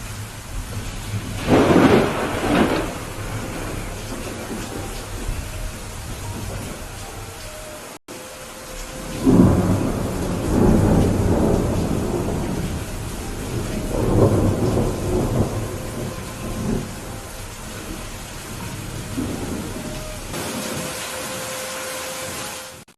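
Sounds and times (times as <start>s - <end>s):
rolling thunder: 0.0s - 7.8s, 8.4s - 21.0s
steady rain: 0.0s - 22.9s.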